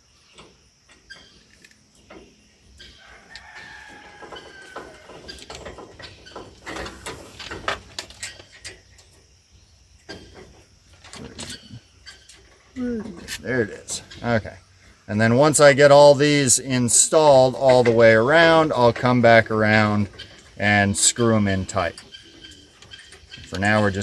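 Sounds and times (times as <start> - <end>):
rooster crowing: 2.9 - 5.4
metal brackets clicking and knocking: 16.3 - 24.0.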